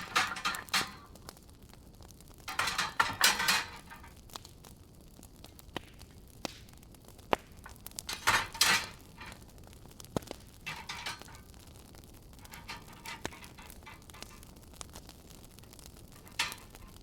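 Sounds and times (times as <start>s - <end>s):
faint fire hiss: 0.0s - 17.0s
wood fire crackling and popping: 0.0s - 17.0s.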